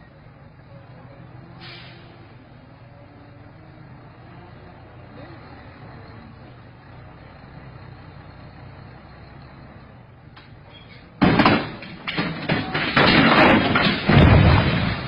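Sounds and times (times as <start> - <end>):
truck idling rumble: 0.0 - 15.0
truck crashing onto its side: 10.7 - 15.0.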